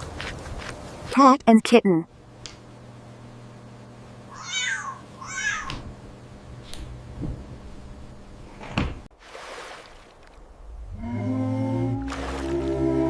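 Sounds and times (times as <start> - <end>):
cat meowing: 4.3 - 5.8.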